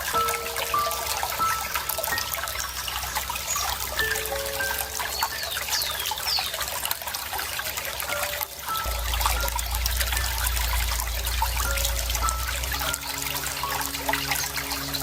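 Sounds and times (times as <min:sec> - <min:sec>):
water trickling and splashing: 0:00.0 - 0:15.0
bird chirps: 0:03.4 - 0:06.7.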